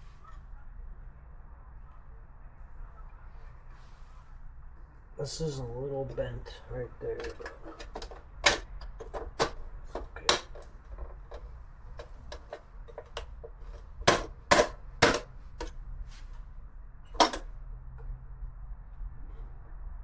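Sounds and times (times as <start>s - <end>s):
metal parts clicking and knocking: 7.1s - 15.8s, 17.1s - 17.5s.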